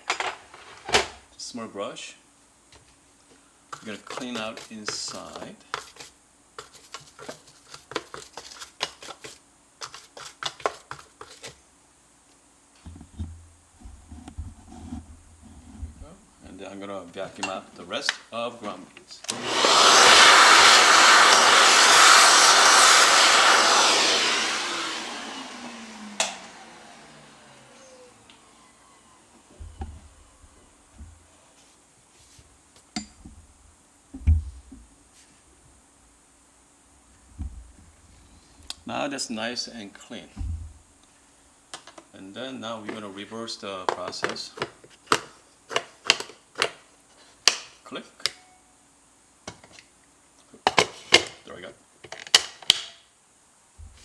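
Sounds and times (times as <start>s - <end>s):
brush scrubbing grinder: 3.8s - 9.3s, 19.3s - 30.6s.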